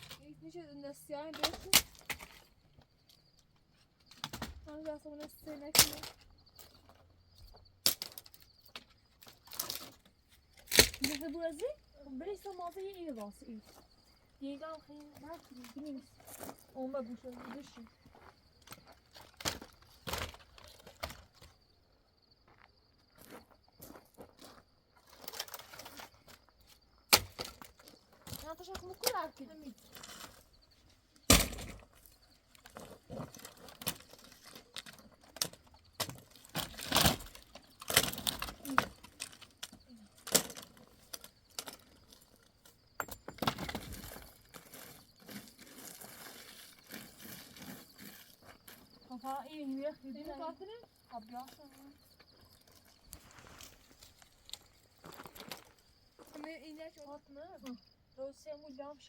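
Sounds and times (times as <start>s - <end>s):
hard objects clinking and knocking: 43.0s - 44.3s.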